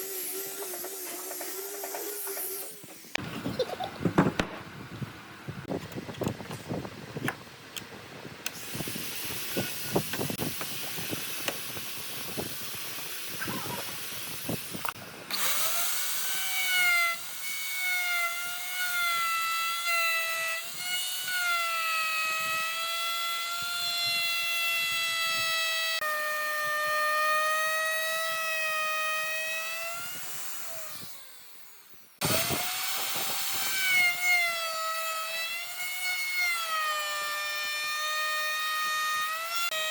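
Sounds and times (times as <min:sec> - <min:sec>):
lathe cutting wood whine: 0:00.0 - 0:03.2.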